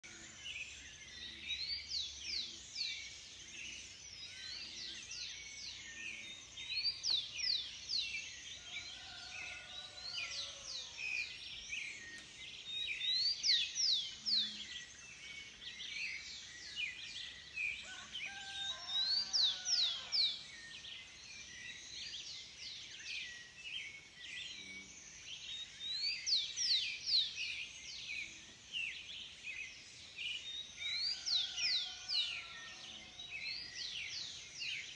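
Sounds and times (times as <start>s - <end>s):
birds chirping and singing: 0.0s - 34.9s.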